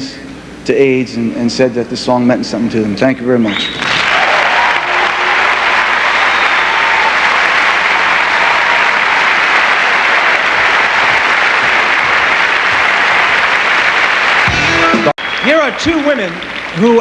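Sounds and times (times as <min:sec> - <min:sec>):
large audience applauding: 0:03.8 - 0:17.0.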